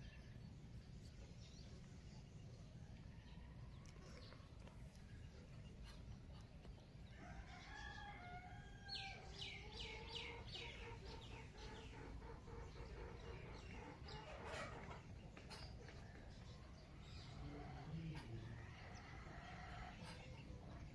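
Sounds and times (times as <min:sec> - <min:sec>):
small birds calling: 0:00.0 - 0:20.9
faint rooster crowing: 0:02.7 - 0:05.4, 0:07.0 - 0:11.7, 0:15.9 - 0:20.9.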